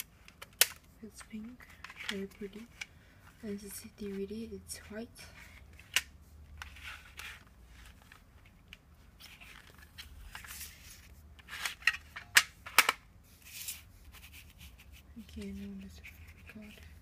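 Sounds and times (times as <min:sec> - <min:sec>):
sharp plastic clicks: 0:00.2 - 0:00.9.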